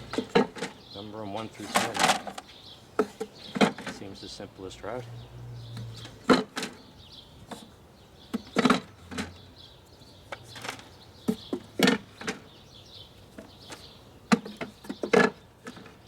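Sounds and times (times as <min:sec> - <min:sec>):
wooden hive frames clunking: 0:00.0 - 0:05.0, 0:13.3 - 0:16.0.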